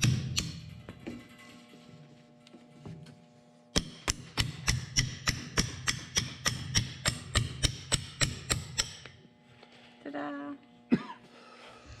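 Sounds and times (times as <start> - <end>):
hammer striking metal pin: 3.8 - 9.2.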